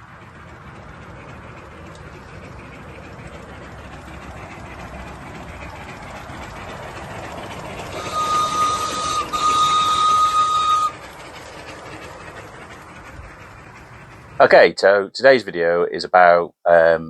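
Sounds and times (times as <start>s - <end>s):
steam hiss: 0.0s - 14.7s
steam engine running: 0.0s - 16.9s
steam locomotive whistle: 3.6s - 12.0s.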